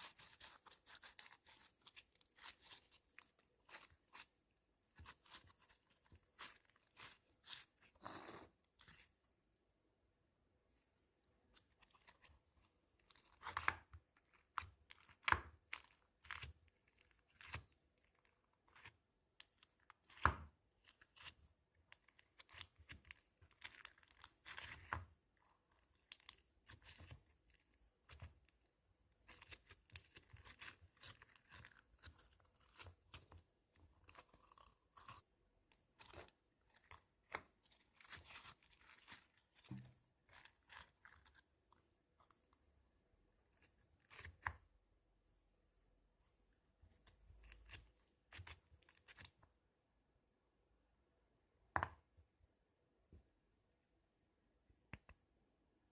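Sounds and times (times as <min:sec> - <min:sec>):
crunchy slime crackling: 0:00.0 - 0:04.3, 0:29.1 - 0:41.5.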